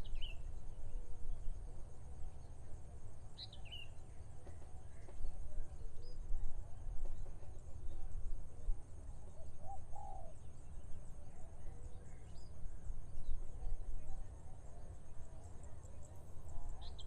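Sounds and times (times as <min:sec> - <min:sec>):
low rumble of wind: 0:00.0 - 0:17.0.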